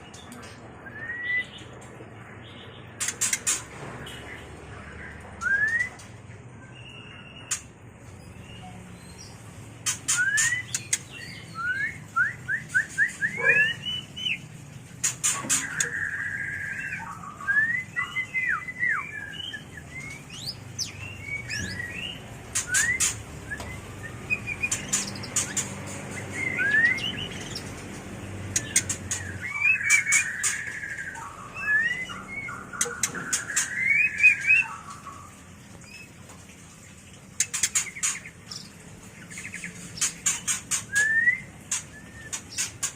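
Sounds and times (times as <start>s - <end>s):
bird singing whistles and clicks: 5.4s - 6.1s, 9.9s - 14.4s, 21.2s - 27.6s, 40.0s - 42.9s.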